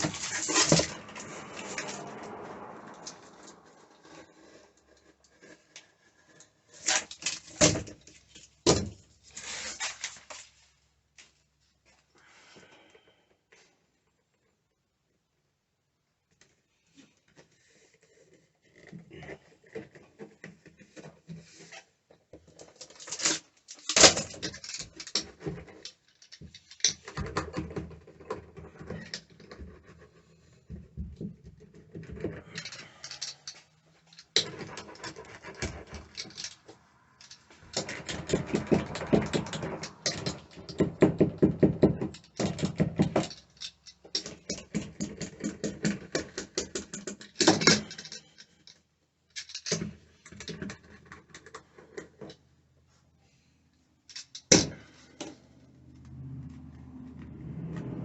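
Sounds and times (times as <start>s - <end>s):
rustling: 0.0s - 12.8s.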